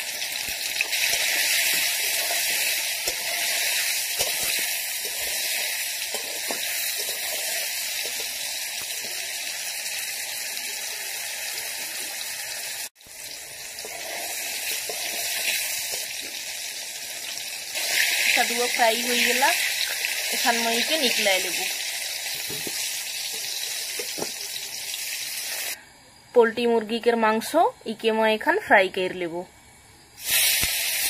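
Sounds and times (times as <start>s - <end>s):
vegetables sizzling in hot oil: 0.0s - 25.8s, 30.2s - 31.0s
spatula scraping the pan: 0.8s - 8.4s, 13.7s - 16.3s.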